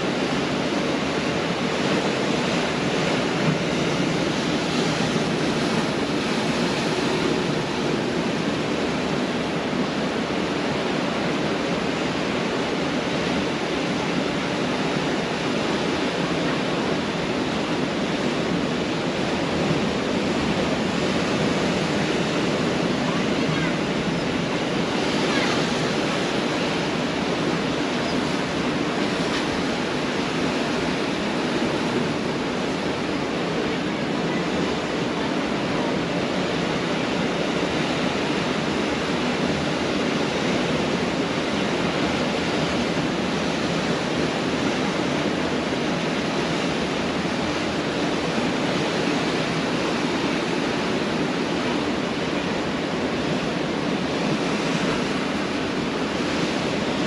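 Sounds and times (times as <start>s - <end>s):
surf washing on beach: 0.0s - 57.0s.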